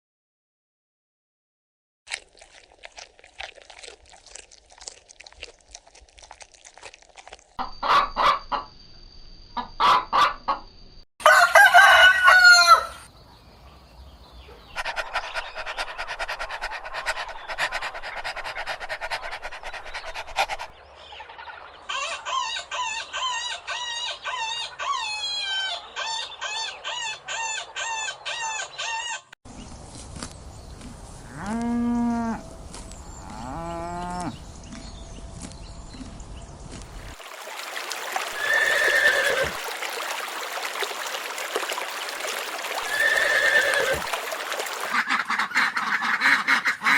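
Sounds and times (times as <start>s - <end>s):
chickens calling: 7.6s - 8.6s, 14.4s - 29.4s, 42.7s - 46.9s
hens clucking: 7.6s - 8.7s, 14.6s - 20.7s, 42.8s - 46.9s
rooster crowing: 11.2s - 13.1s.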